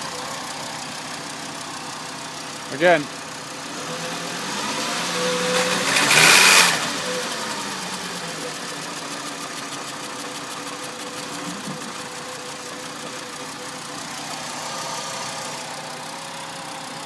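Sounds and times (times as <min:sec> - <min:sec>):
car engine revving and idling: 0:00.0 - 0:17.0.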